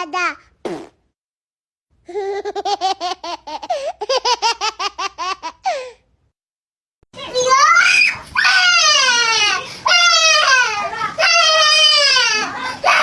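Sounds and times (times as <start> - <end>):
baby laughing: 2.1 - 5.9.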